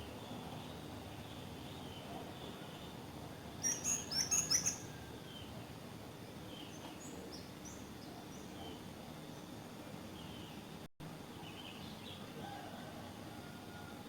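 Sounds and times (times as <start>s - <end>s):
birds chirping: 3.6s - 4.9s.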